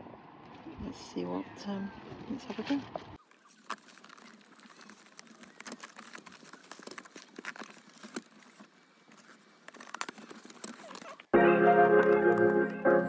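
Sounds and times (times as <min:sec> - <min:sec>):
plastic packaging crinkling: 0:03.2 - 0:11.3, 0:12.0 - 0:13.0.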